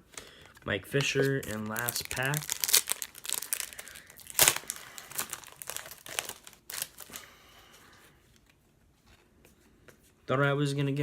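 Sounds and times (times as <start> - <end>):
wrapper crinkling and tearing: 1.0 - 7.3.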